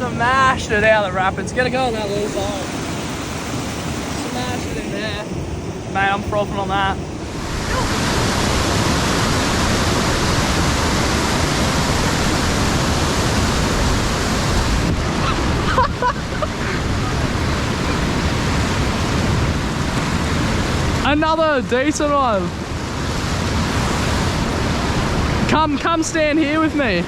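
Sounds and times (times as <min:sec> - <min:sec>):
water rushing over rapids: 0:00.0 - 0:26.2
faint voice: 0:07.6 - 0:08.0.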